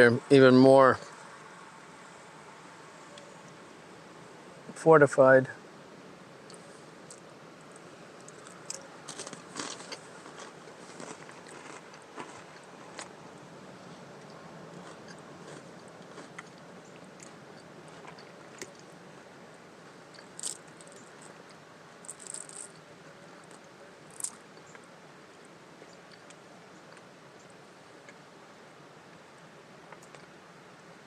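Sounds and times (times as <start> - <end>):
sharp crackles: 7.0 - 13.1, 20.1 - 21.4
person chewing crunchy crackers: 8.2 - 13.2, 14.2 - 19.0, 20.0 - 22.8, 23.4 - 24.8, 26.0 - 27.1.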